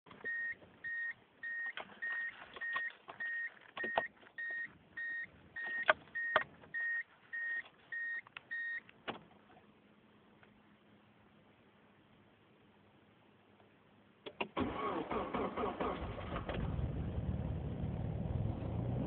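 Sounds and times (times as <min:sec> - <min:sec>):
car warning buzzer beeping: 0:00.2 - 0:08.8.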